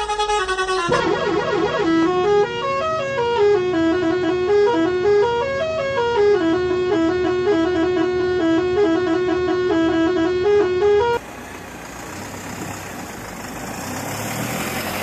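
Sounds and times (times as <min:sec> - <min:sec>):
steady low drone: 0:00.0 - 0:09.2
buzzy horn-like tune: 0:00.0 - 0:11.2.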